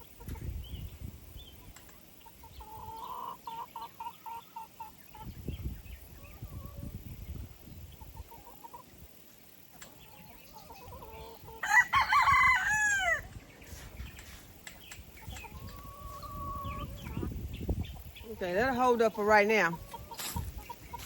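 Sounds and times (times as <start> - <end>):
rooster crowing: 11.6 - 13.3.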